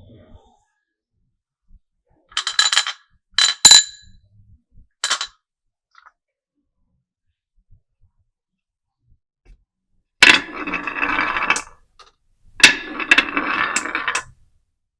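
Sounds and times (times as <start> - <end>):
marbles clacking on track: 12.6 - 14.4.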